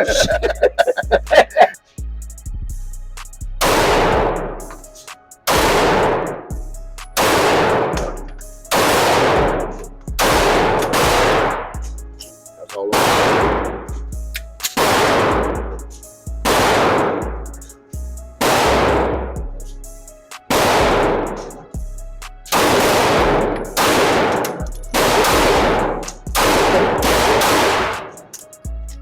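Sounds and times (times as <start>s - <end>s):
instrumental music with bass: 0.0s - 5.0s, 5.6s - 12.4s, 13.3s - 27.8s, 28.6s - 29.0s
handgun shots with echo: 3.6s - 4.4s, 5.5s - 6.4s, 7.2s - 9.6s, 10.2s - 11.7s, 12.9s - 13.8s, 14.7s - 15.5s, 16.5s - 17.2s, 18.4s - 19.1s, 20.5s - 21.3s, 22.5s - 28.4s.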